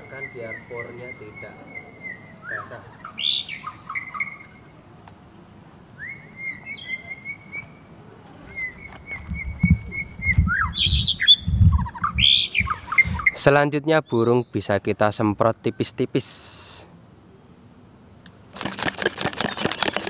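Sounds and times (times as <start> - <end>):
songbird chirping and trilling: 0.0 - 16.2
rustling: 18.5 - 20.0.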